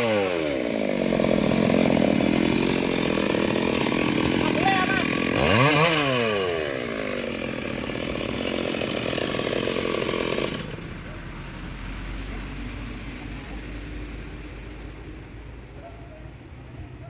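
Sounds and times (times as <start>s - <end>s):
chainsaw revving: 0.0s - 10.9s.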